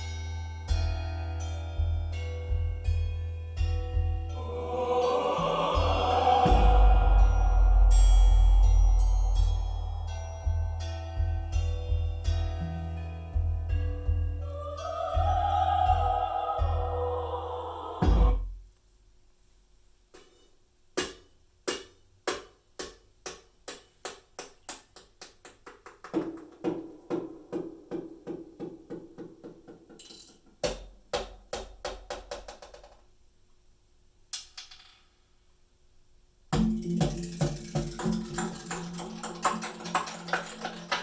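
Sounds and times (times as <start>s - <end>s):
steady low note: 0.7s - 18.4s
wood-block-like percussion hits: 6.4s - 10.6s, 21.0s - 33.0s, 36.5s - 41.0s.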